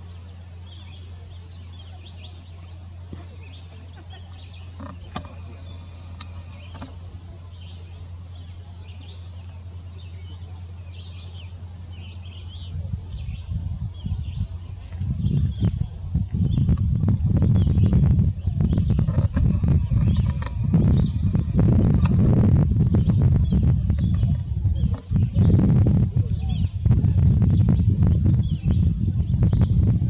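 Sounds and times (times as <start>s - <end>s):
small birds chirping: 0.0s - 16.8s, 17.4s - 25.6s
steady low hum: 0.0s - 30.0s
camera zoom motor whine: 4.8s - 7.0s, 19.1s - 23.0s
wind buffeting microphone: 12.6s - 30.0s.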